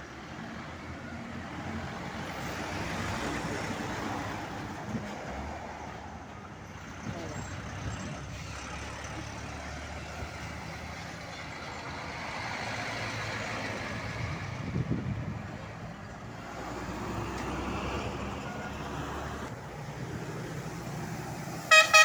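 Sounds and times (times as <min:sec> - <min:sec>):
truck diesel engine running: 0:18.1 - 0:22.0.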